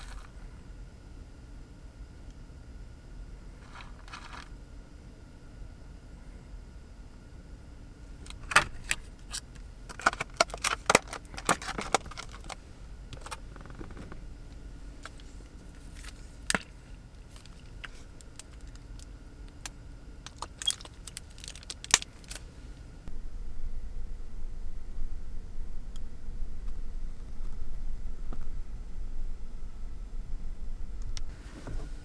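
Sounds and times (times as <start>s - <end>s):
steady low hum: 0.0s - 32.0s
small hard objects clinking: 20.2s - 22.4s.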